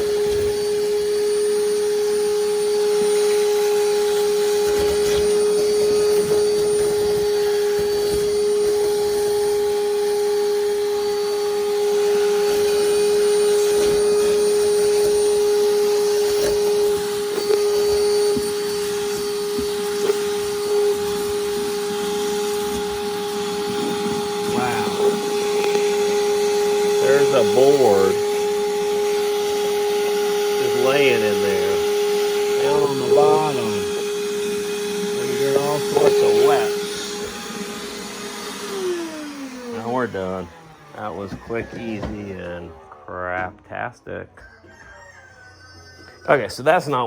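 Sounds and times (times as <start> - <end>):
vacuum running with rushing air: 0.0 - 44.8.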